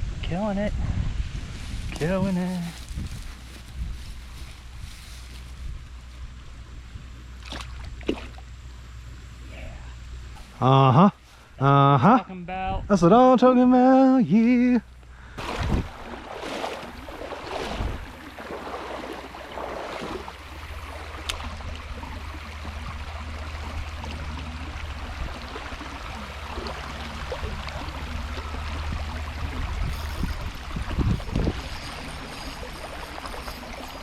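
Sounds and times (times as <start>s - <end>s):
knocks and splashes: 7.4s - 8.5s, 15.4s - 32.0s
creek water rushing: 15.3s - 34.0s.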